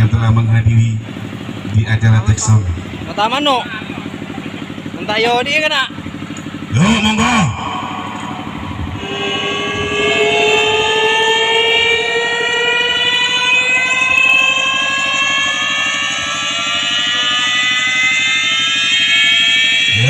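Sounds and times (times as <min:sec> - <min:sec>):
siren-like tone rising in pitch: 0:05.4 - 0:20.0
fast buzzing low pulse: 0:06.6 - 0:14.4.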